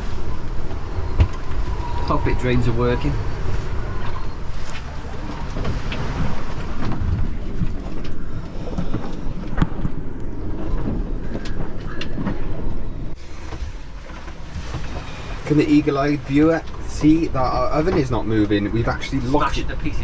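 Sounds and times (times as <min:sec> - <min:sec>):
boat knocks and rattles: 0:00.0 - 0:20.0
wind and rushing water: 0:00.0 - 0:20.0.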